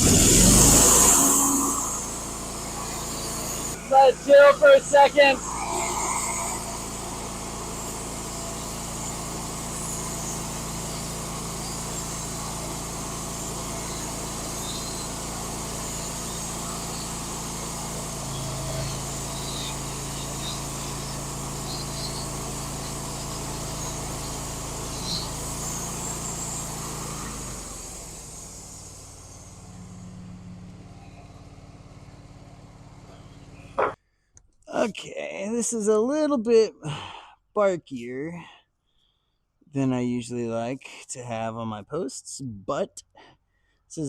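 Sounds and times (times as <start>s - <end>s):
low hum: 0.0s - 8.7s
sawmill cutting: 0.0s - 34.0s.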